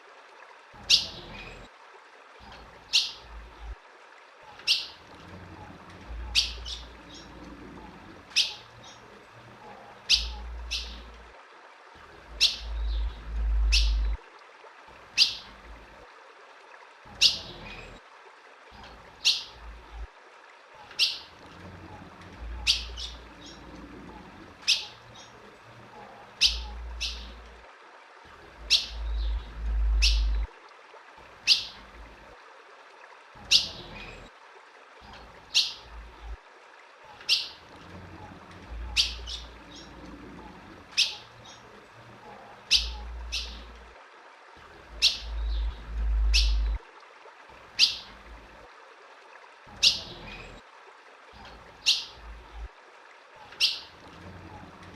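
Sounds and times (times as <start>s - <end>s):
bird chip calls: 0.8s - 1.6s, 4.6s - 5.0s, 6.2s - 7.3s, 8.3s - 9.0s, 10.0s - 11.1s, 12.4s - 14.2s, 20.9s - 21.3s, 22.6s - 23.6s, 24.6s - 25.4s, 26.4s - 27.4s, 28.6s - 30.5s, 31.4s - 31.8s, 38.9s - 39.9s, 41.0s - 41.6s, 42.7s - 43.7s, 45.0s - 46.8s, 47.8s - 48.1s, 51.8s - 52.2s, 53.4s - 53.9s
low rumble: 12.6s - 14.2s, 29.0s - 30.5s.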